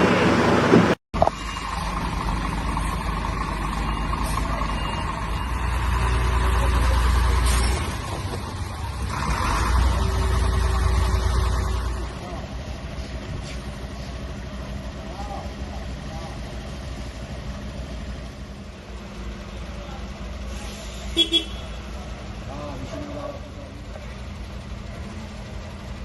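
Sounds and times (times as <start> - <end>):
heavy vehicle engine rumbling: 0.0 - 26.0.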